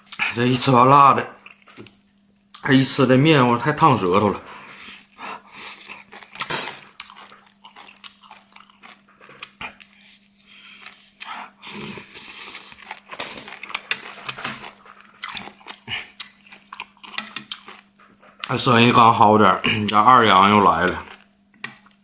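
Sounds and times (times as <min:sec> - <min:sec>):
person chewing and slurping: 0:04.4 - 0:18.7.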